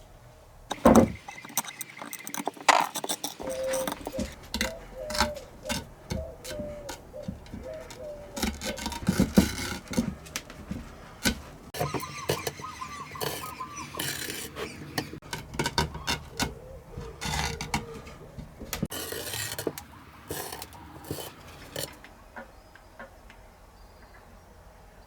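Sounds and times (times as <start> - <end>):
hard objects clinking and scraping: 0.7 - 22.0
short squeaks: 0.7 - 22.0
faint bird chirps: 0.8 - 5.5, 11.8 - 15.0.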